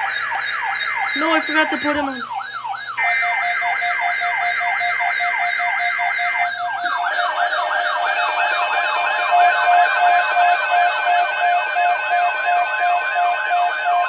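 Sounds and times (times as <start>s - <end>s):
steady beeping tones: 0.0s - 3.4s
siren warble: 0.0s - 14.0s
siren yelp: 0.0s - 14.0s.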